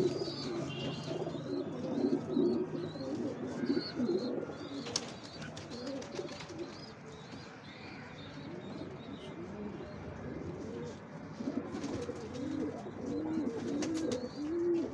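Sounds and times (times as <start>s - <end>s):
small birds chirping: 0.0s - 10.1s, 11.8s - 14.9s
pigeons cooing: 0.0s - 14.9s.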